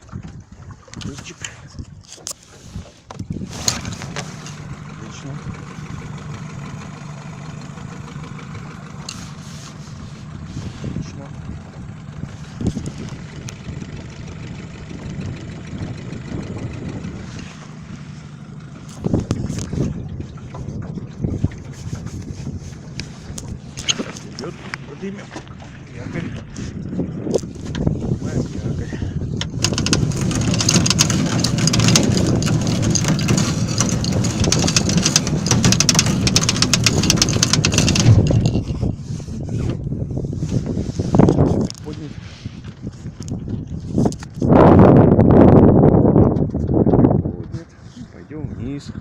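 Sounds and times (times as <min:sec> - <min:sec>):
outboard motor idling: 0:00.0 - 0:49.0
line clattering over drum: 0:29.4 - 0:38.7.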